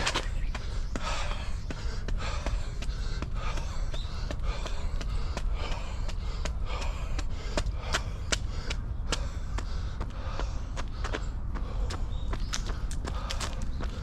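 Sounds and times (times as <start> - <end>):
running footsteps on path: 0.0 - 14.0
wind rumble on microphone: 0.0 - 14.0.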